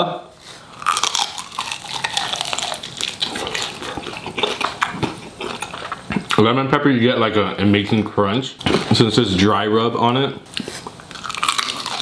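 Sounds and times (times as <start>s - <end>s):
crunchy chewing of chicken wing: 0.7s - 6.4s, 10.5s - 12.0s.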